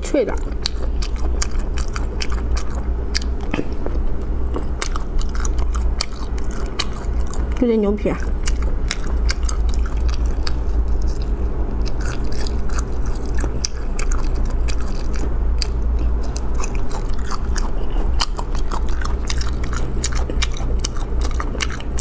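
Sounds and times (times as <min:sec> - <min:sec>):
chewing meat close to microphone: 0:00.0 - 0:22.0.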